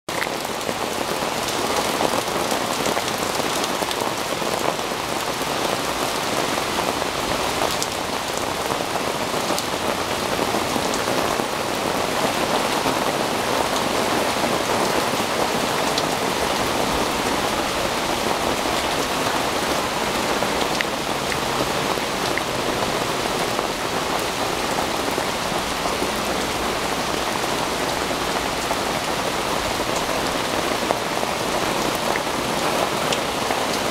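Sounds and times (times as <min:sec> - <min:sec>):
rain on leaves and deck: 0:00.1 - 0:33.9
rain drop ticks: 0:20.6 - 0:22.6.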